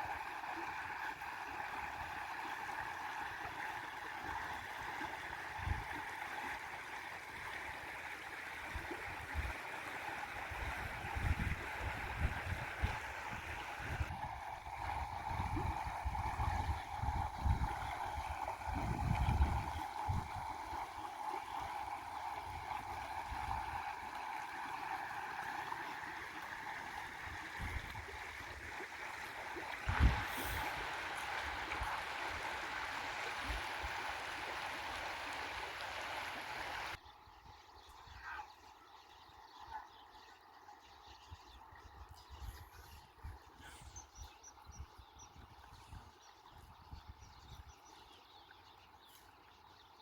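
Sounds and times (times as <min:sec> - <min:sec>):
river water flowing: 0:00.0 - 0:37.0.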